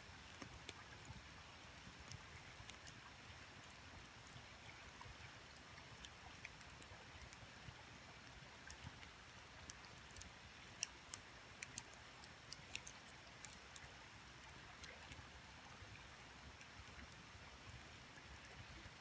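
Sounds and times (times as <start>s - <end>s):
campfire crackling: 8.0s - 15.2s.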